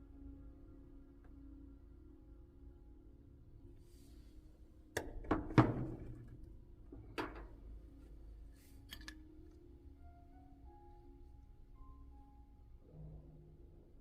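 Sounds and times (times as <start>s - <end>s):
tools knocking and clattering: 7.0s - 7.6s
small clicks: 8.9s - 9.6s.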